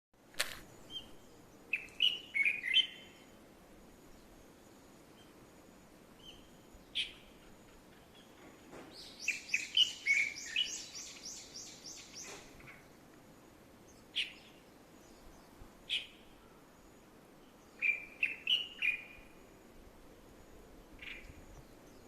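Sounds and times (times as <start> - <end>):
wild birds chirping and calling: 6.2 - 13.0, 13.9 - 16.9.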